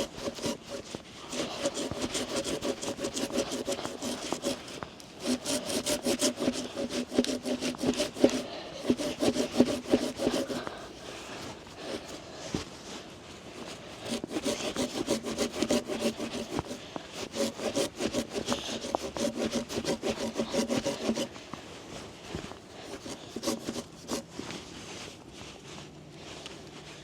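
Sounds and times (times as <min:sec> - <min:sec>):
hand saw cutting wood: 0:00.0 - 0:11.0, 0:11.8 - 0:12.2, 0:13.6 - 0:21.4, 0:22.8 - 0:24.3.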